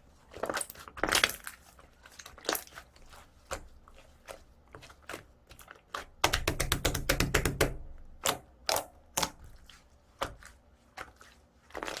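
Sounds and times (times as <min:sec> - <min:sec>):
slime crackling with clicks: 0:05.1 - 0:09.6.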